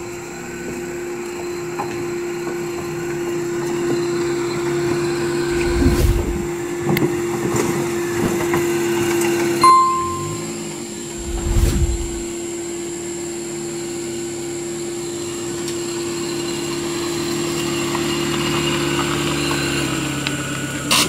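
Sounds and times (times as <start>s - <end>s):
brief low rumble: 5.4s - 6.5s, 11.2s - 12.3s.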